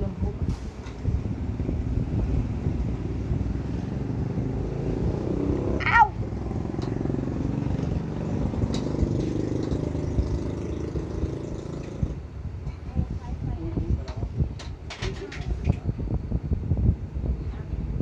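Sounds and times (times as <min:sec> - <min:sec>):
vehicle engine rumbling: 0:00.0 - 0:12.2
short falling pitched cry: 0:05.8 - 0:06.2.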